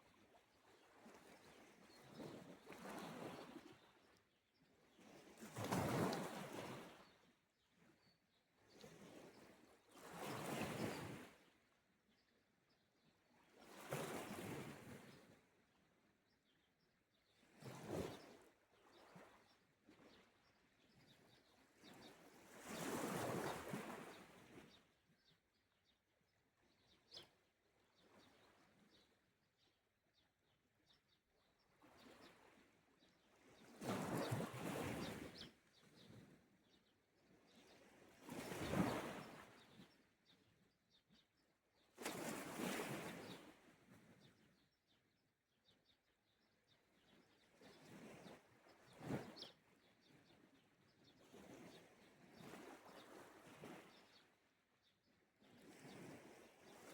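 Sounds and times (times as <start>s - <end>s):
small waves breaking on shore: 38.2s - 39.7s, 42.0s - 43.7s.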